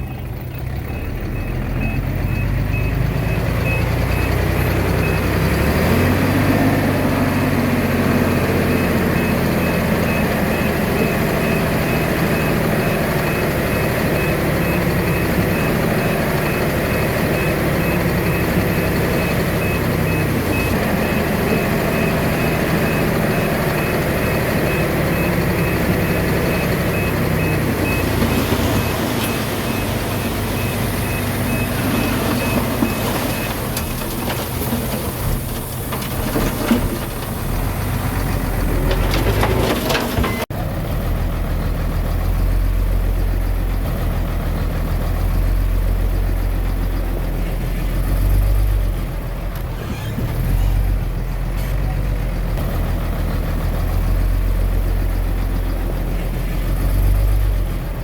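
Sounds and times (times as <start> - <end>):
bulldozer diesel engine: 0.0 - 58.0
reversing alarm beeping: 0.1 - 6.6, 7.3 - 33.8.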